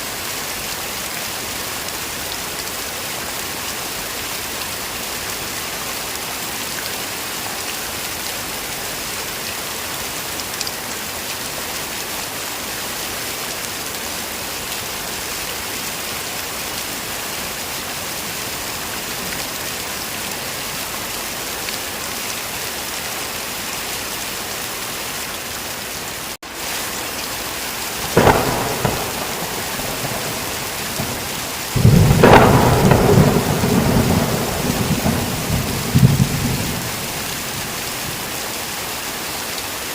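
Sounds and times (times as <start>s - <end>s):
heavy rain: 0.0s - 39.9s
thunder clap: 28.0s - 37.8s
rolling thunder rumble: 28.0s - 38.3s.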